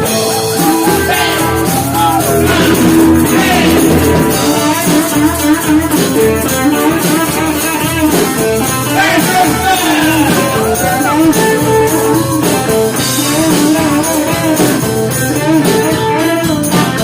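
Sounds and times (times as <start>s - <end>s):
drums: 0.0s - 17.0s
guitar with bending pitch: 0.3s - 6.8s, 7.6s - 14.6s.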